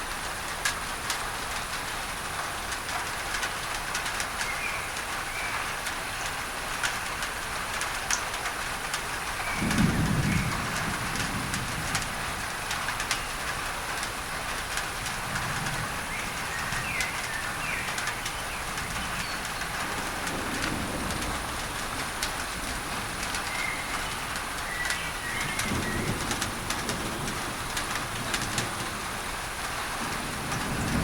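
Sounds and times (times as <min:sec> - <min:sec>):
rain on a tin roof: 0:00.0 - 0:31.0
low rumble of thunder: 0:07.3 - 0:31.0.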